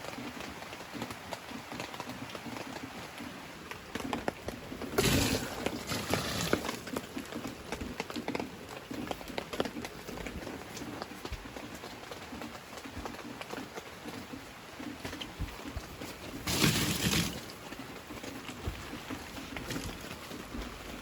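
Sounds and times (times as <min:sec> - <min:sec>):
heavy rain on a tent: 0:00.0 - 0:21.0.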